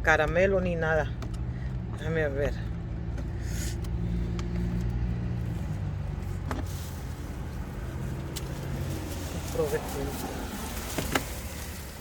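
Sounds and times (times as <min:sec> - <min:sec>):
car engine idling: 0:00.0 - 0:12.0
rustling: 0:03.2 - 0:12.0.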